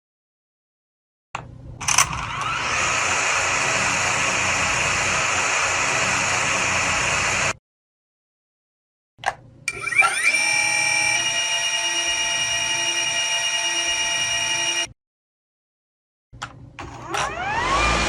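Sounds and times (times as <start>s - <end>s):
drone motors buzzing: 1.8s - 7.6s, 9.7s - 14.9s, 16.9s - 18.0s.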